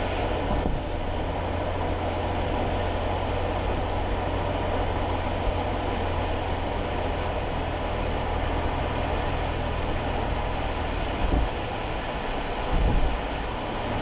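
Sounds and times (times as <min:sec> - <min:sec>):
car engine hum: 0:00.0 - 0:14.0
tyres hissing on wet road: 0:00.0 - 0:14.0.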